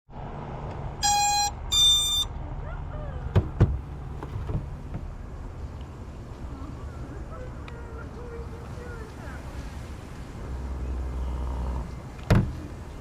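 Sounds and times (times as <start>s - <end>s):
short electronic beeps: 1.0s - 2.3s.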